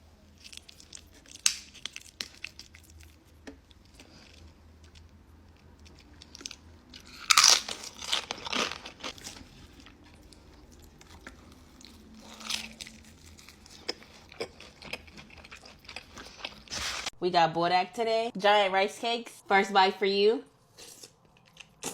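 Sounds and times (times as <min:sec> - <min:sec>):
crunchy bites and chewing: 0:05.8 - 0:17.1.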